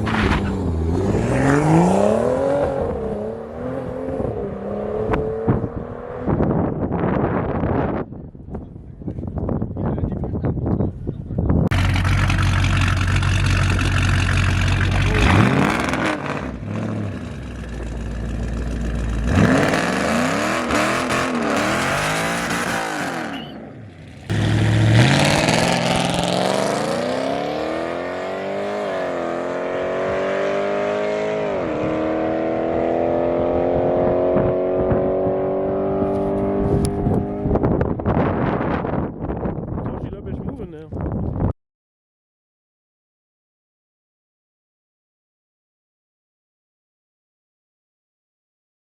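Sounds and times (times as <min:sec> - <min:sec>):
car engine accelerating hard: 0:11.7 - 0:23.4, 0:24.2 - 0:37.6.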